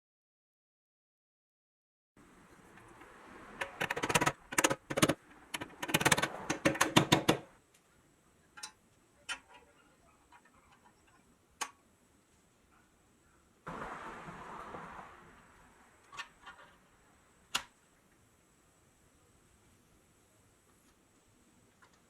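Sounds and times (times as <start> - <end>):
clicks and rattles: 3.6 - 7.5.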